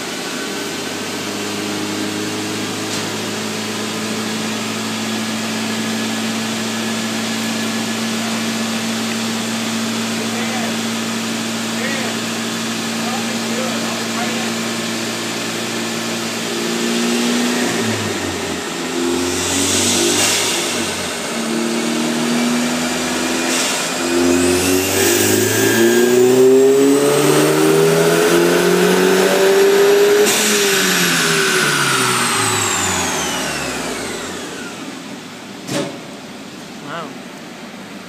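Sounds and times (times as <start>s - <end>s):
car engine revving under load: 0.0s - 36.8s
high whine: 22.5s - 29.6s.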